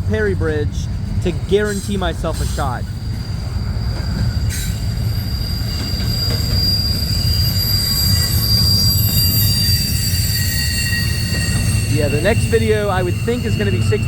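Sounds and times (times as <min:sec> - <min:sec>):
freight train cars rumbling: 0:00.0 - 0:14.0
high-pitched wheel squeal: 0:03.1 - 0:14.0.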